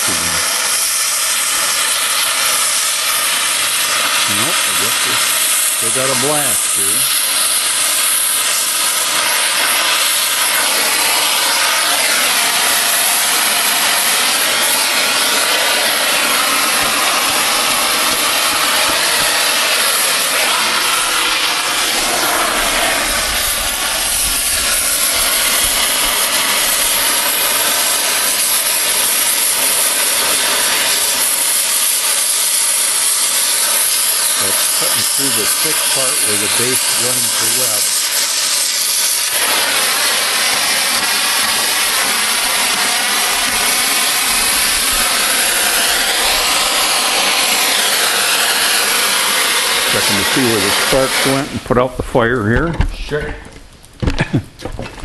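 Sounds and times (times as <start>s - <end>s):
cutting torch hissing: 0.0s - 55.0s
low rumble: 20.8s - 27.0s.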